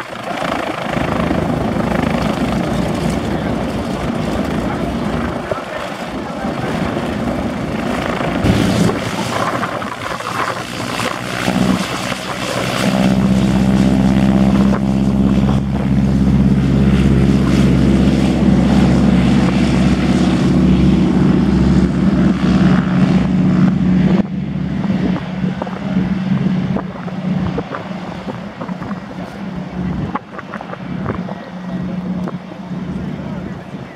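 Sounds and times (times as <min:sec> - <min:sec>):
radial aircraft engine and propeller: 0:00.0 - 0:33.9.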